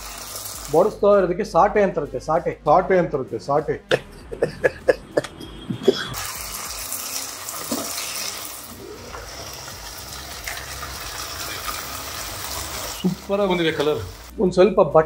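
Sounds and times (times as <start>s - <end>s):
onions frying in oil sizzle: 0.0s - 1.0s, 6.2s - 14.3s.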